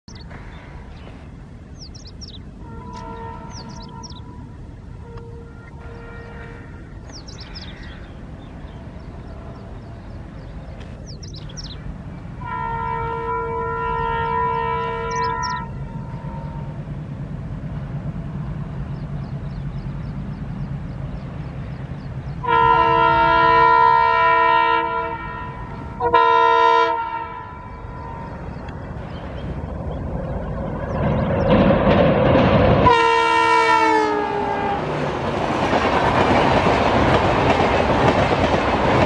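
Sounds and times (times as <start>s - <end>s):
locomotive multi-tone horn: 2.6s - 6.9s, 12.4s - 16.8s, 22.4s - 28.5s, 32.8s - 35.1s.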